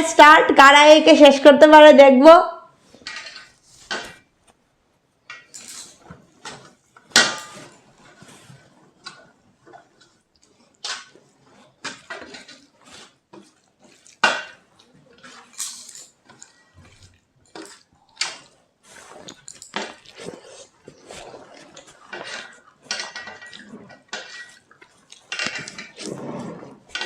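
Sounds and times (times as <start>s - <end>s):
soft chewing: 8.1s - 26.2s
clinks and scrapes on plate: 11.8s - 27.0s.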